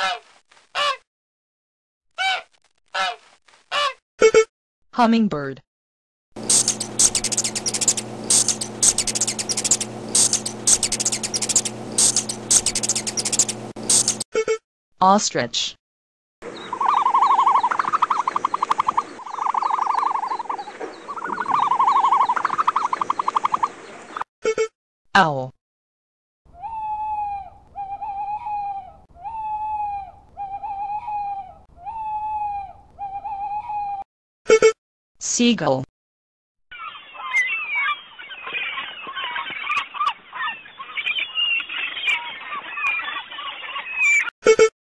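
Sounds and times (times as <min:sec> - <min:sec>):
hummingbird chittering: 0:06.4 - 0:14.2, 0:16.6 - 0:23.6
owl hooting: 0:06.4 - 0:14.2, 0:16.6 - 0:23.7, 0:26.5 - 0:34.0
steady low hum: 0:06.4 - 0:14.2.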